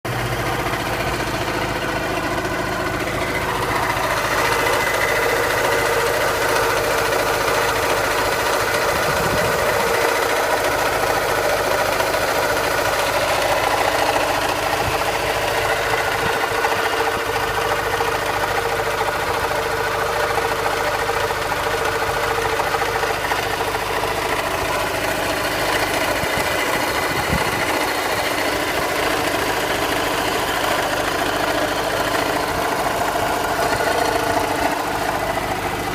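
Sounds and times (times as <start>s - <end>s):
car engine running: 0.0s - 35.9s.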